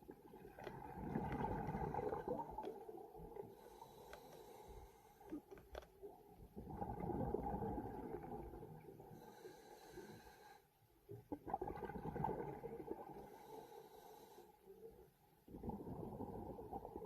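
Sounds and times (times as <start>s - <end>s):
gurgling bubbles: 0.0s - 3.4s, 6.5s - 9.0s, 11.3s - 13.2s, 15.5s - 17.0s
diver breathing through regulator: 3.5s - 5.5s, 9.1s - 10.7s, 13.2s - 14.7s.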